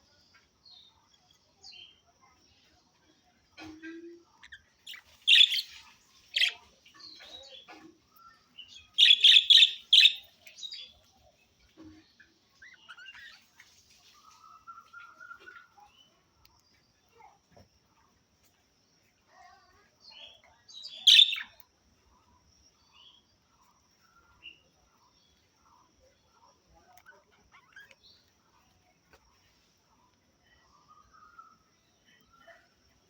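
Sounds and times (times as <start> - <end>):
budgerigars chirping and warbling: 4.5 - 7.8, 8.6 - 11.0, 20.9 - 21.6
loud sharp bird chirps: 4.9 - 6.6, 8.9 - 10.3, 20.8 - 21.6.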